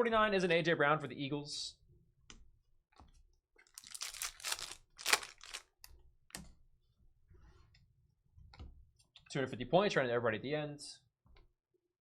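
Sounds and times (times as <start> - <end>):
wrapper tearing and crinkling: 3.7 - 5.7.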